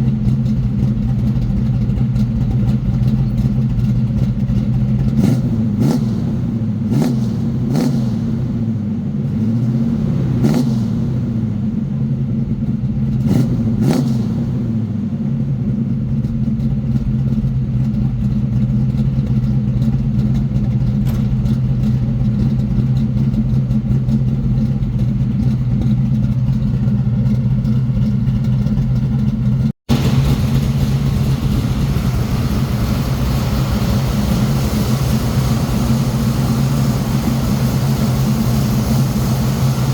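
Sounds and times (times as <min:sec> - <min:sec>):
car engine idling: 0:00.0 - 0:13.8, 0:14.4 - 0:39.9
car engine revving: 0:02.6 - 0:15.4, 0:23.2 - 0:39.9
exhaust pops: 0:16.2 - 0:39.9.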